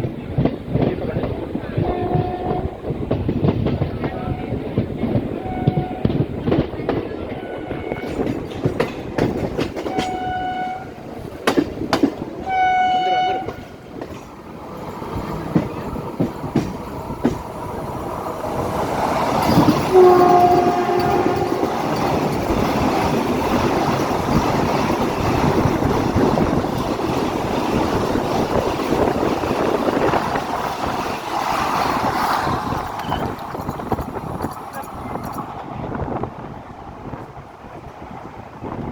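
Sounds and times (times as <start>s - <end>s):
train wheel clacks: 0.0s - 36.3s
rush of train cars passing: 0.0s - 38.9s
two-tone train horn: 1.8s - 2.9s, 5.4s - 6.2s, 7.2s - 8.3s, 9.8s - 11.1s, 12.4s - 13.9s, 19.6s - 22.1s.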